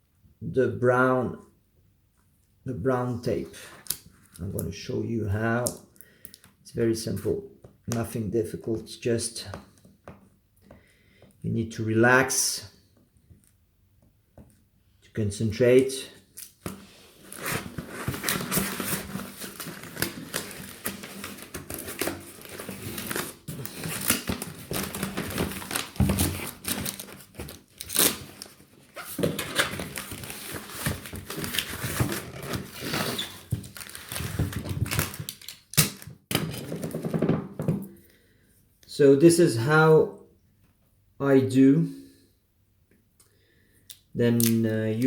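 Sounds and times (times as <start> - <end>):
packing tape pulled off roll: 16.4 - 37.0
tape crinkling on cardboard: 16.4 - 37.0.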